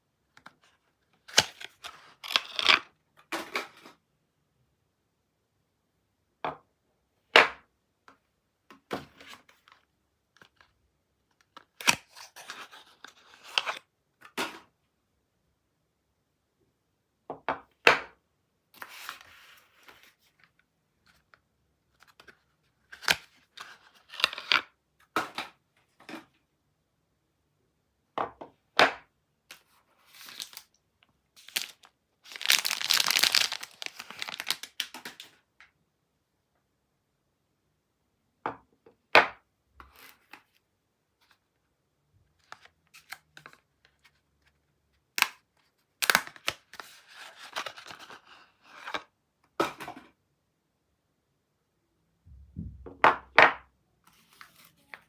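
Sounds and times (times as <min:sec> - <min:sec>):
packaging tearing: 0:31.4 - 0:35.2
packaging crackling and crinkling: 0:31.4 - 0:35.3.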